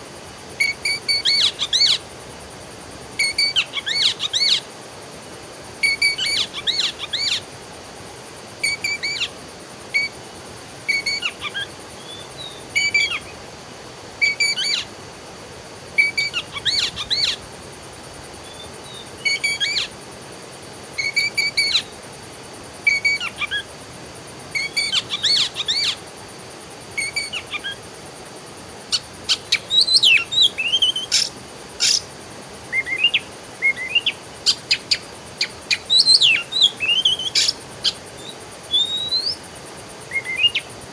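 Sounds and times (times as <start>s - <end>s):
faint steady hiss: 0.0s - 40.9s
songbirds chirping: 29.0s - 40.8s.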